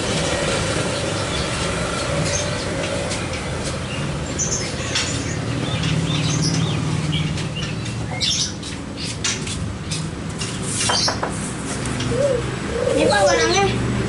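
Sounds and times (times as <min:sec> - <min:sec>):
birds chirping: 0:00.3 - 0:14.0.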